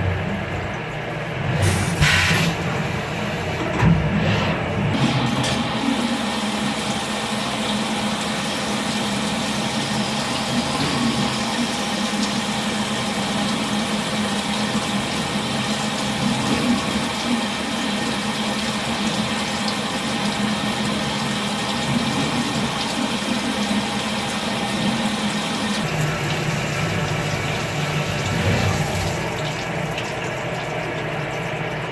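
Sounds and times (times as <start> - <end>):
milling machine running: 0.0 - 31.9.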